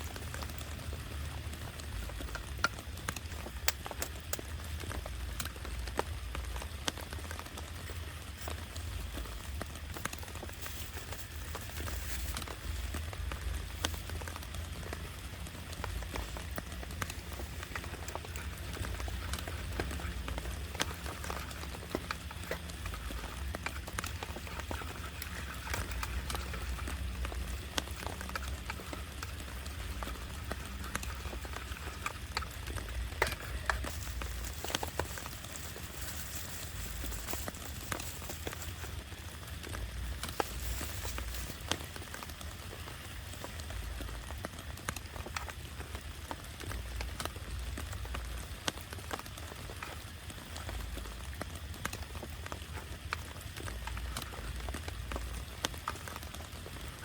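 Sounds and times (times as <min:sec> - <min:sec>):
heavy rain on a tarp: 0:26.0 - 0:57.0.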